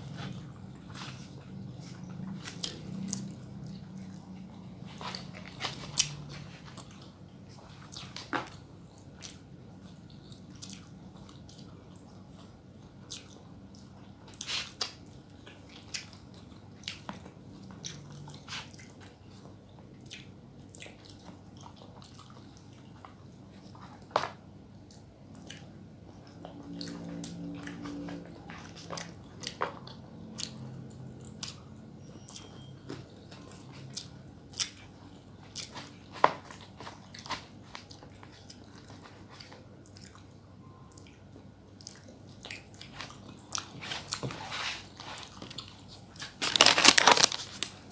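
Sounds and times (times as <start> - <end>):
chewing and biting: 0.0 - 24.1, 32.3 - 47.9
small crunches: 44.0 - 47.9.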